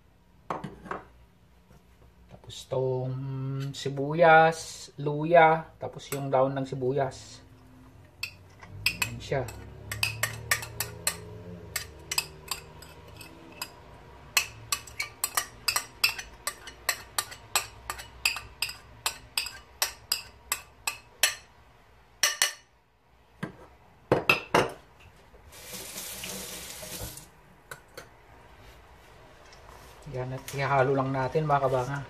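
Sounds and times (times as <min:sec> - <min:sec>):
metal spoon scraping dish: 0:08.1 - 0:20.6.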